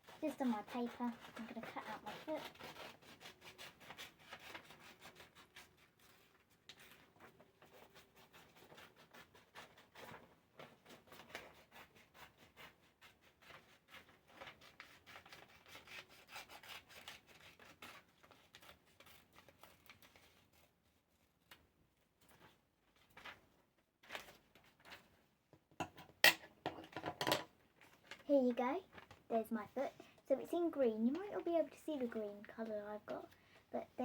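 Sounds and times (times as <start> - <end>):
scissors snipping paper: 0.0 - 12.6.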